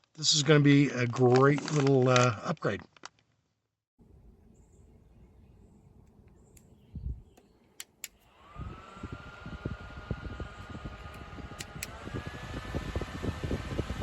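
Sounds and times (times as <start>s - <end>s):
airflow buffeting microphone: 5.9s - 7.4s, 8.4s - 14.0s
fan motor whine: 5.9s - 14.0s
fan switch click: 6.0s - 8.2s, 10.9s - 12.0s.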